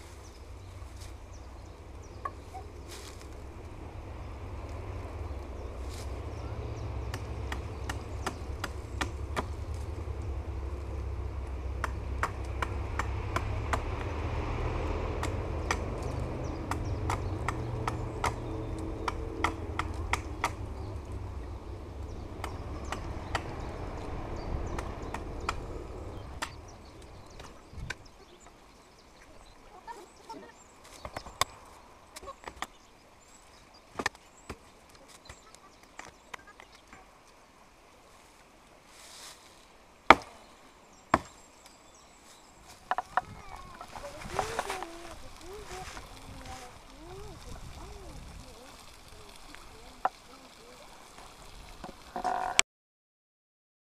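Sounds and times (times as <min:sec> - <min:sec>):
low rumble: 0:00.0 - 0:28.5
wooden knocks and cracks: 0:42.8 - 0:43.4.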